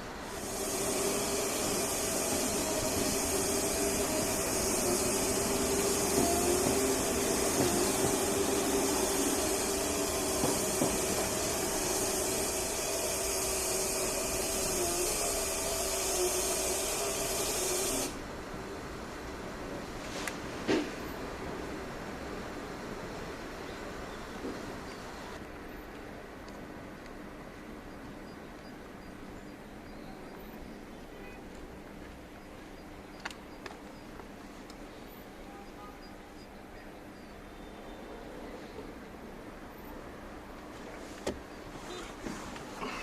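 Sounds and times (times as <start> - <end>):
small electric motor humming: 0.3 - 18.2.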